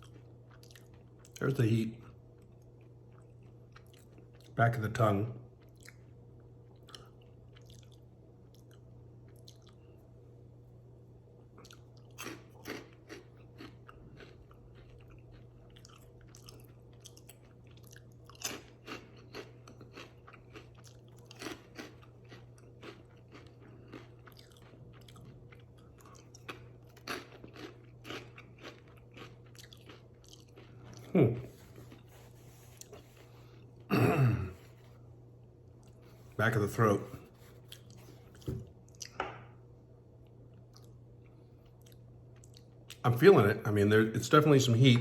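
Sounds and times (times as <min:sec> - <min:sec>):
person chewing crunchy snacks: 0:00.0 - 0:01.4, 0:05.6 - 0:09.9, 0:11.5 - 0:35.0, 0:37.3 - 0:39.2.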